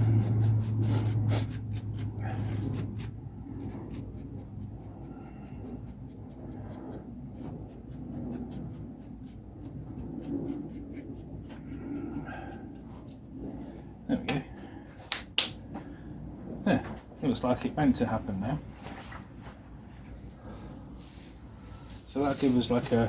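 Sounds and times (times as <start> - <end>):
brush sweeping dry grout: 0.0 - 3.2
low hum: 0.0 - 22.1.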